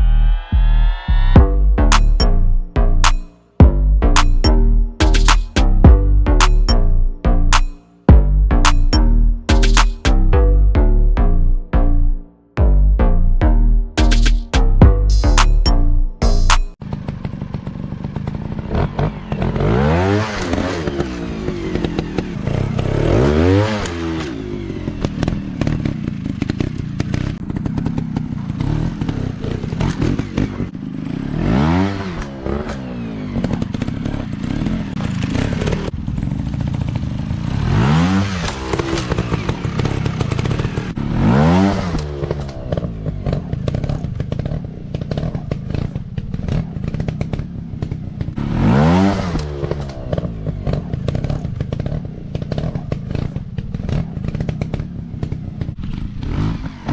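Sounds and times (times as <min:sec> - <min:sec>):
dirt bike engines revving: 0:14.3 - 0:56.9.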